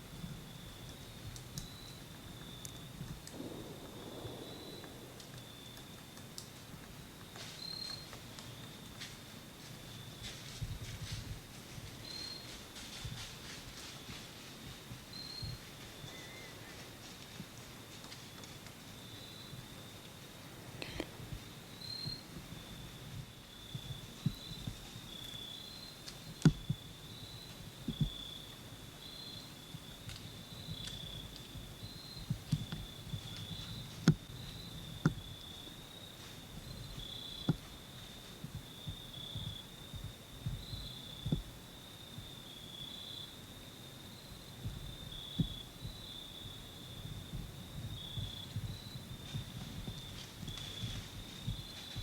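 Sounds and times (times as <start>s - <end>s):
sharp clicks and ticks: 2.6s - 7.0s.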